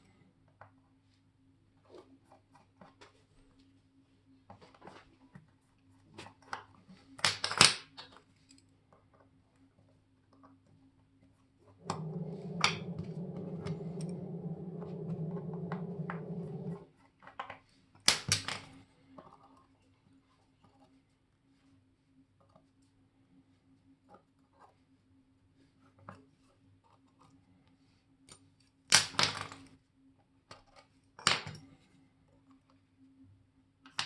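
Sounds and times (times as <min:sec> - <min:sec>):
small electric device humming: 0:11.8 - 0:16.8.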